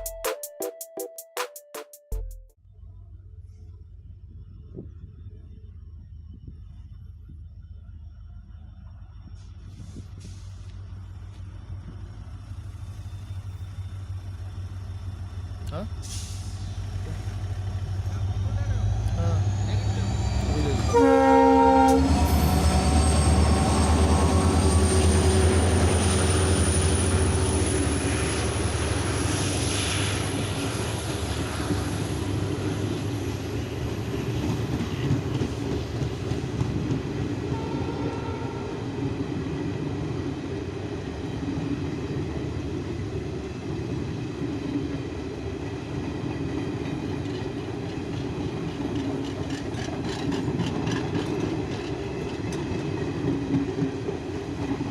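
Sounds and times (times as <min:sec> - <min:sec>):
locomotive hum and whine: 0:02.6 - 0:54.9
train wheels rumbling: 0:04.0 - 0:54.9
wheels clacking over rail joints: 0:46.6 - 0:54.9.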